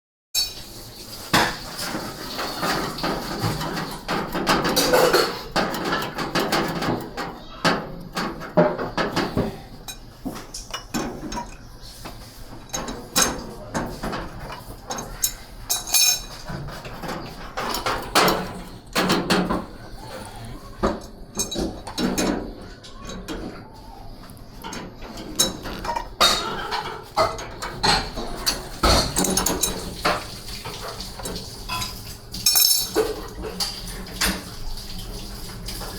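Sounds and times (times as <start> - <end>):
metal parts clinking and clattering: 12.6 - 19.6, 21.0 - 22.5, 30.9 - 34.3.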